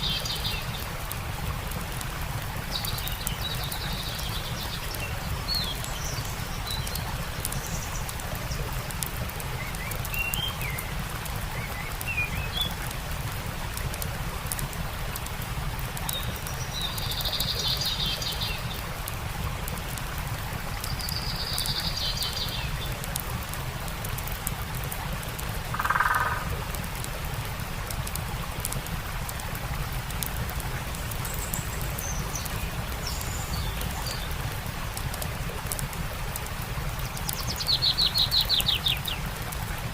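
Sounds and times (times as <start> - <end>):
campfire crackling: 0.0 - 39.9
stream water running: 0.0 - 39.9
small birds chirping: 2.6 - 12.9, 16.0 - 19.0, 20.6 - 23.2, 30.8 - 35.4, 36.9 - 39.5.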